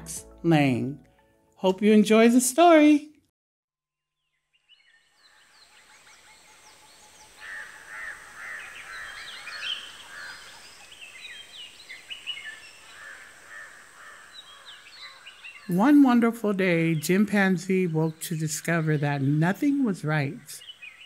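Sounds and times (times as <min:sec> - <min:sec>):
chorus of birds chirping: 0:04.4 - 0:21.0.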